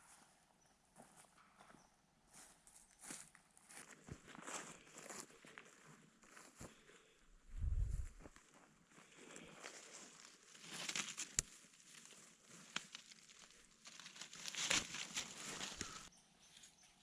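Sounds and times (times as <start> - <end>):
rustling and crinkling: 7.5 - 16.1.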